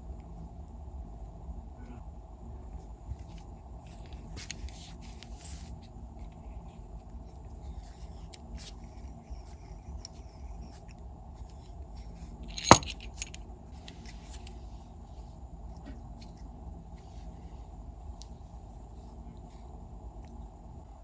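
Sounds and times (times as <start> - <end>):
steady low hum: 0.0 - 21.0
sharp metallic clink: 12.5 - 13.3.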